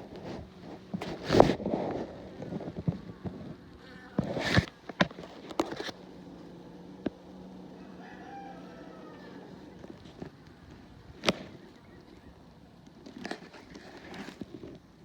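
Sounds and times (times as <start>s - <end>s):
clicks and rustling: 0.0s - 6.0s, 9.8s - 14.9s
honeybees humming: 0.0s - 15.0s
rooster crowing: 7.6s - 9.9s.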